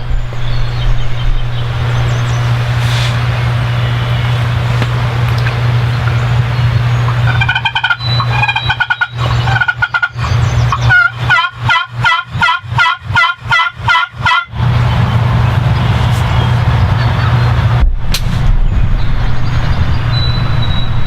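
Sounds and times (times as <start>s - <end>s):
low rumble: 0.0s - 9.7s, 14.5s - 21.0s
turkey yelping: 2.0s - 14.5s.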